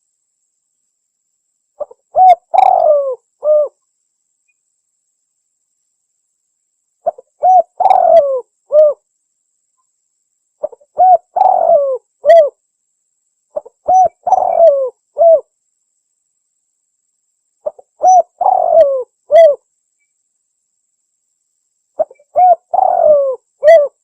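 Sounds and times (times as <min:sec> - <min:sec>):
dove cooing: 0:01.8 - 0:03.8, 0:07.0 - 0:09.0, 0:10.6 - 0:12.6, 0:13.6 - 0:15.5, 0:17.6 - 0:19.6, 0:22.0 - 0:24.0.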